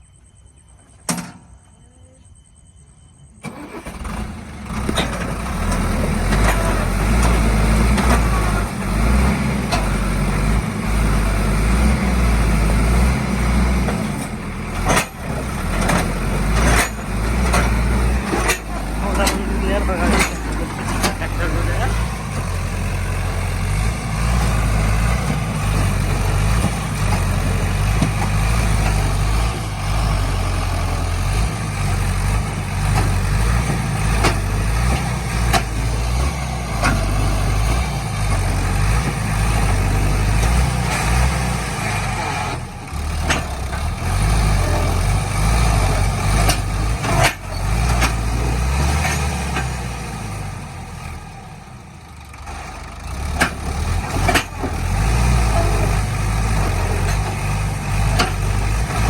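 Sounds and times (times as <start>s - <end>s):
tractor diesel engine rumbling: 3.2s - 59.0s
sharp engine knocks: 13.8s - 22.9s, 23.7s - 29.6s, 32.1s - 41.3s, 53.2s - 55.0s, 55.6s - 59.0s.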